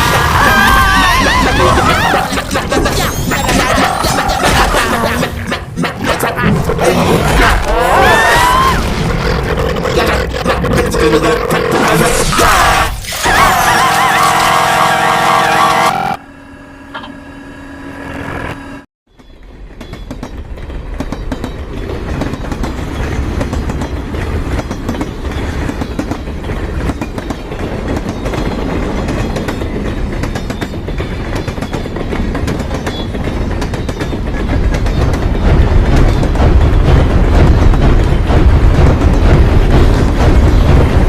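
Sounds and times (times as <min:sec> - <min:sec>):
train wheels clattering on rails: 0:19.2 - 0:41.0.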